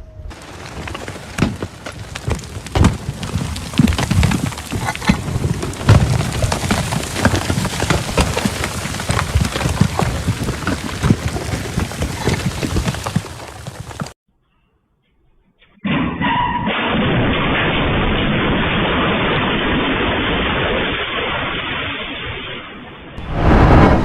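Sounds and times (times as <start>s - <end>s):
heavy rain patter: 0.3s - 14.2s
low rumbling: 23.2s - 24.0s.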